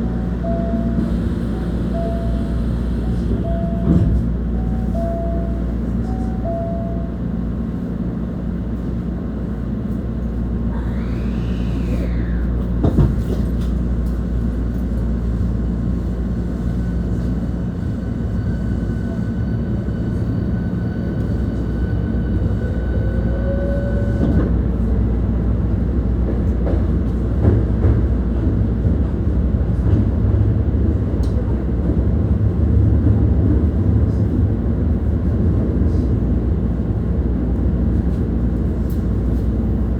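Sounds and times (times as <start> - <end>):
train motor whine: 0.0 - 7.0, 10.7 - 13.8
train wheels rumbling on rail: 0.0 - 39.9.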